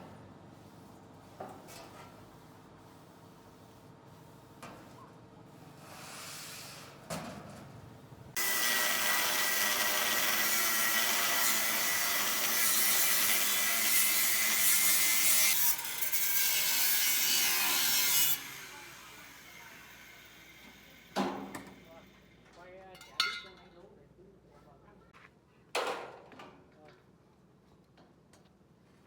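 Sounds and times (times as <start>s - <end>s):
power tool grinding with high whine: 8.4s - 21.2s.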